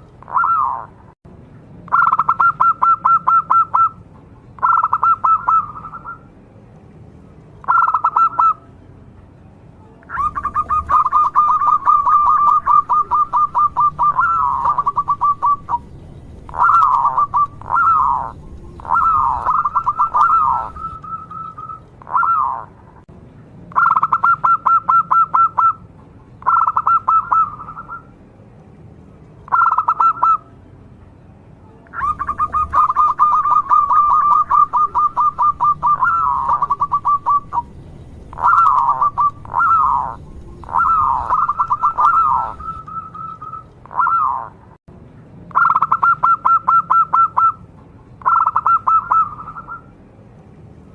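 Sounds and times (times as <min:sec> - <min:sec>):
dove cooing: 0:00.2 - 0:00.9, 0:01.9 - 0:04.0, 0:04.6 - 0:06.2, 0:07.6 - 0:08.6, 0:10.1 - 0:22.8, 0:23.8 - 0:25.8, 0:26.4 - 0:28.1, 0:29.5 - 0:30.4, 0:31.9 - 0:44.6, 0:45.6 - 0:47.6, 0:48.2 - 0:49.9.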